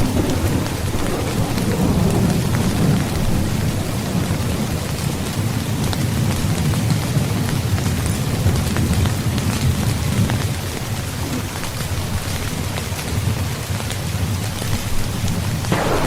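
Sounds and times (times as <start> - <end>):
low thunder rumble: 0.0 - 10.5, 15.5 - 16.0
heavy rain: 0.0 - 16.0.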